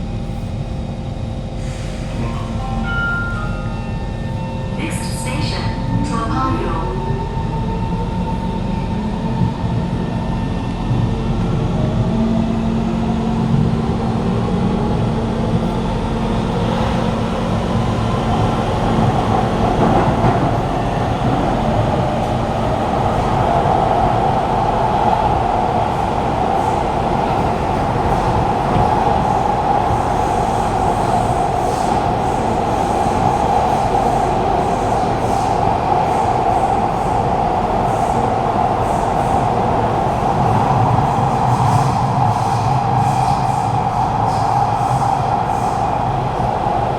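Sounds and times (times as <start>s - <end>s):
train wheels roaring on rail: 0.0s - 46.9s.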